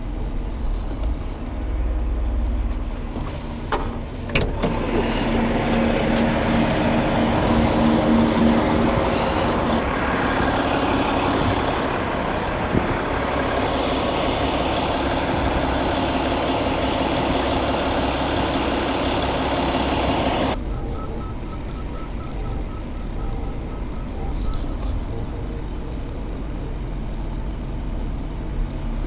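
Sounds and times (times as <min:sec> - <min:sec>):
diesel truck engine under load: 0:00.0 - 0:29.0
faint regular beeping: 0:20.7 - 0:25.1.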